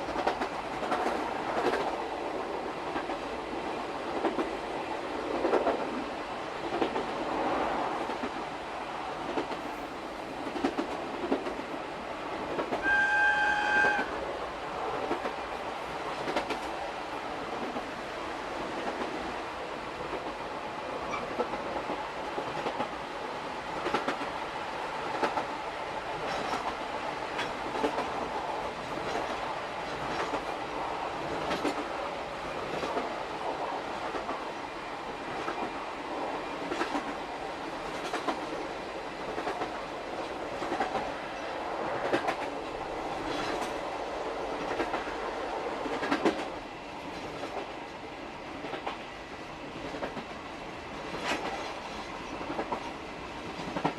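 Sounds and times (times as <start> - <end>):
train wheels clacking on rail joints: 0.0 - 2.0, 4.1 - 4.6, 10.4 - 14.2, 16.1 - 16.8, 23.8 - 24.3, 25.0 - 25.6, 26.2 - 34.4, 36.5 - 38.6, 39.2 - 47.9, 48.5 - 53.9.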